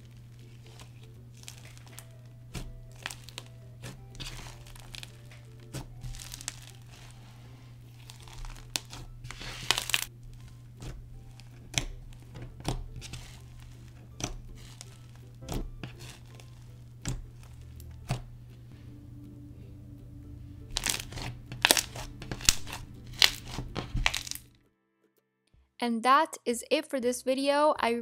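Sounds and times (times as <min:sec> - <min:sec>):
crispy slime crackling and popping: 0:00.0 - 0:18.3, 0:20.6 - 0:24.5.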